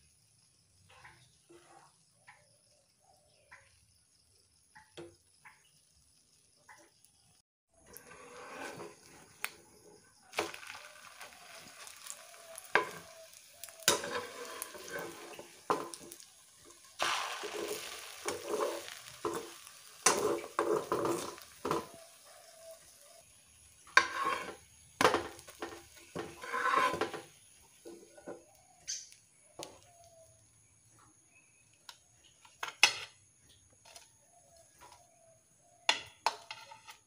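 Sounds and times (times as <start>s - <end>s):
bread sizzling in oil: 0.0s - 33.2s
wooden spatula scraping pan: 7.9s - 9.4s, 11.1s - 16.2s, 17.3s - 22.2s, 23.8s - 28.5s, 36.2s - 37.0s.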